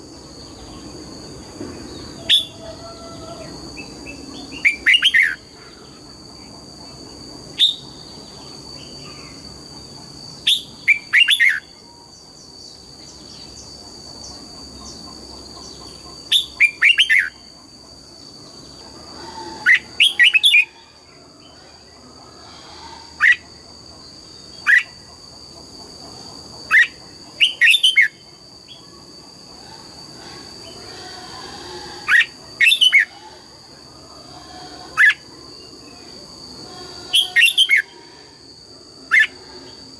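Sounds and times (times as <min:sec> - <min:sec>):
bird singing whistled notes: 0:07.6 - 0:08.0.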